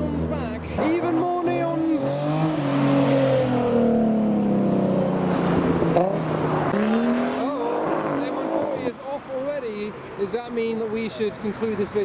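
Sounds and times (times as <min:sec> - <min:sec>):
car engine driving by: 0:00.0 - 0:09.4.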